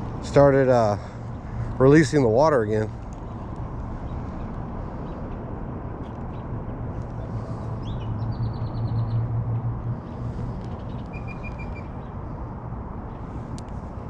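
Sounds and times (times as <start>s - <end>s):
rapid bird trills: 10.1s - 12.1s.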